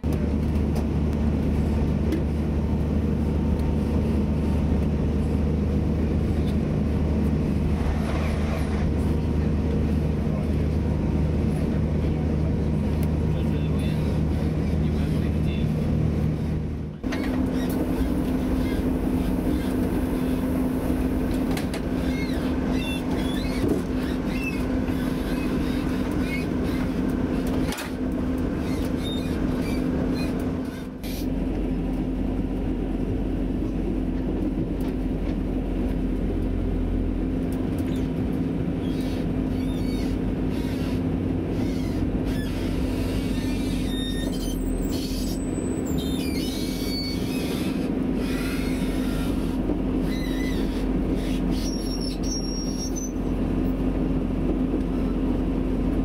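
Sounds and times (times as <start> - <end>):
train engine drone: 0.0 - 56.0
wheels rumbling on rails: 0.0 - 56.0
high squeaks: 22.0 - 27.0, 28.6 - 31.2, 38.8 - 53.3.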